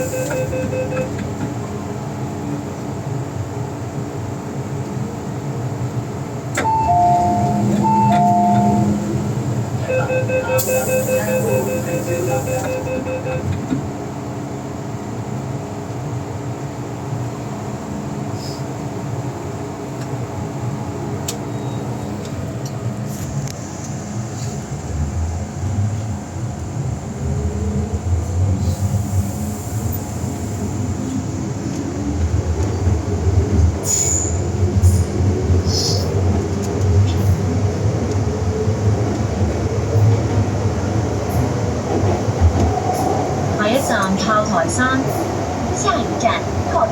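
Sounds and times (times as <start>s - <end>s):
rapid door warning beeps: 0.0s - 1.2s, 6.6s - 9.0s, 9.8s - 13.5s
train wheel-on-rail rumble: 0.0s - 46.9s.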